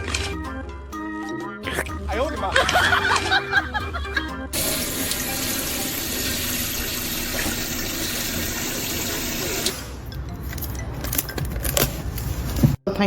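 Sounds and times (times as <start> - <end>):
running water rushing: 4.6 - 10.0.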